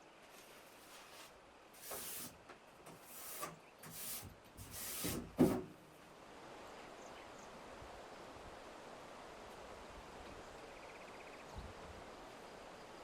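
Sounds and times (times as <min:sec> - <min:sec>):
rough scraping strokes: 0:00.4 - 0:05.5.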